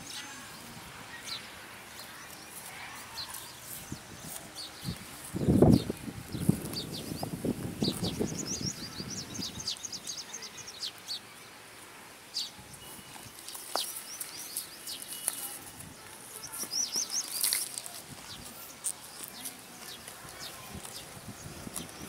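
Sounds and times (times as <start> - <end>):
small birds chirping: 0.0 - 22.0
cow cropping grass: 13.2 - 21.0.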